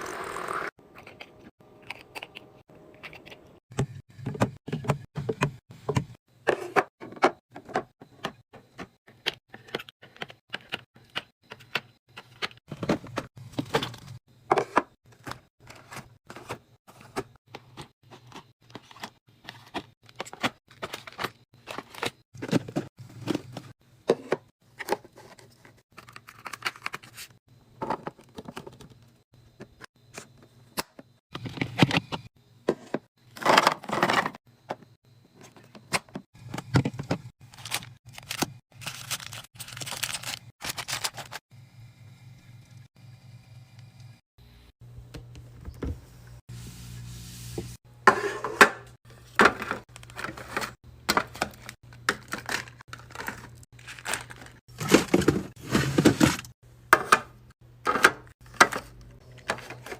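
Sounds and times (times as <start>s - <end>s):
items clicking and knocking: 0.8s - 41.4s, 48.0s - 59.9s
packaging tearing and crinkling: 37.4s - 41.4s.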